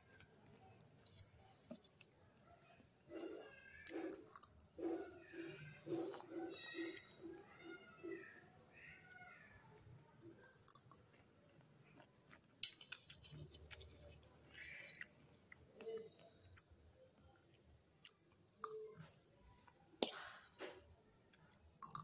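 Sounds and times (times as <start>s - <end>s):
chewing fruit: 0.0s - 7.5s, 9.8s - 19.8s.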